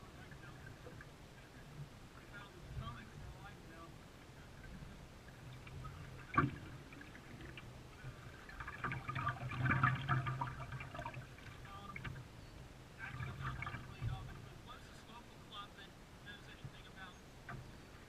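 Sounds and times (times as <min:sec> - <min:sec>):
paddles splashing in water: 0:04.2 - 0:12.4, 0:13.0 - 0:14.8.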